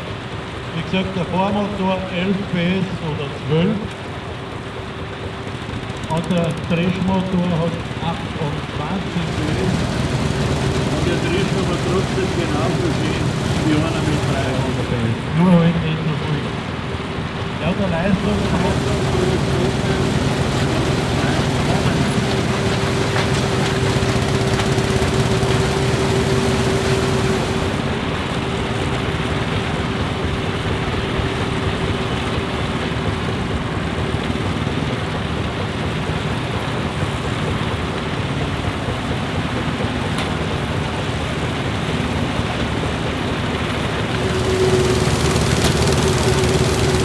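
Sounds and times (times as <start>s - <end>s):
combine harvester threshing: 8.6s - 15.5s, 17.6s - 28.3s, 44.1s - 47.0s.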